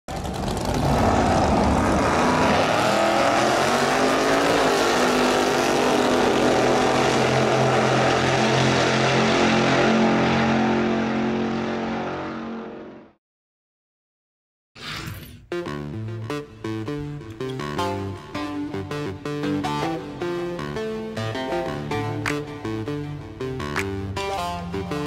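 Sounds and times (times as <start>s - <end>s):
race car engine running: 0.1s - 9.4s.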